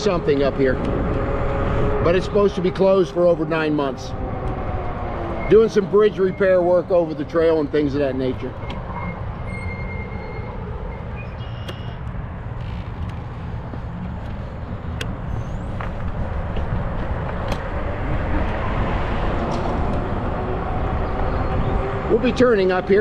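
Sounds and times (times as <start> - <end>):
bicycle tyre noise on trail: 12.3 - 18.6
wind on microphone: 12.4 - 22.1.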